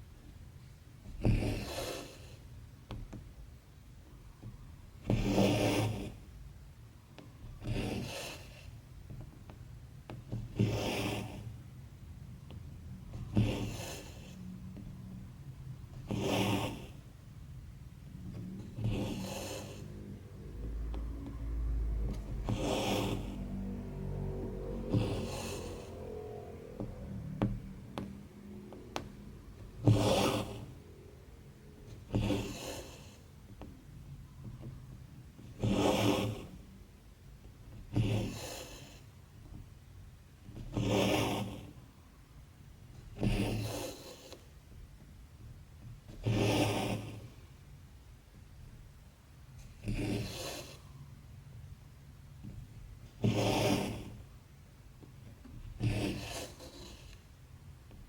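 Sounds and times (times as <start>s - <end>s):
thread rasping through fabric: 7.1s - 23.8s, 24.8s - 36.8s, 52.4s - 54.4s, 55.0s - 58.0s.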